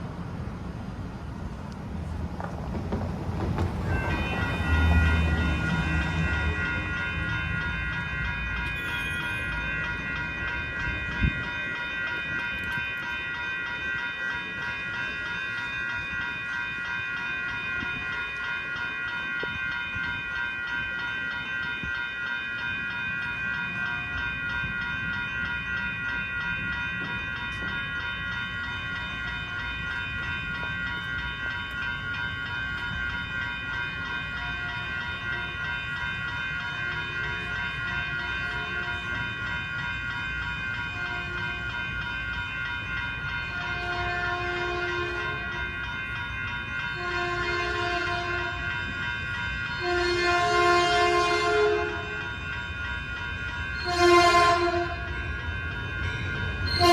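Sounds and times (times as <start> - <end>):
train high whine: 0.0 - 56.9
train low rumble: 0.0 - 56.9.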